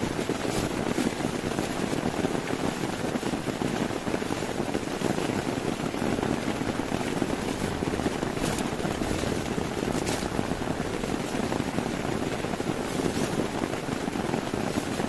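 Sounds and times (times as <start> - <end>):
heavy rain on a tent: 0.0 - 15.0.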